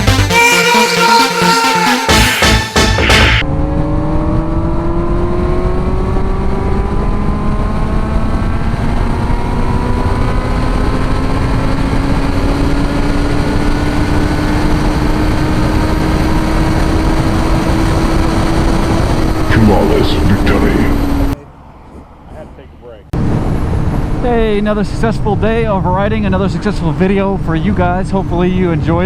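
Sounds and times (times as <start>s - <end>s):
music: 0.0s - 3.4s
motorcycle engine accelerating: 3.4s - 21.4s.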